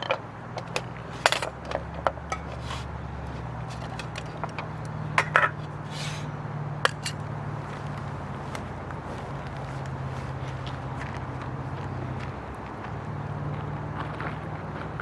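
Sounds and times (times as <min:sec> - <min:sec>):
cookware clinking and knocking: 0:00.0 - 0:02.8, 0:03.7 - 0:05.6, 0:06.8 - 0:07.2.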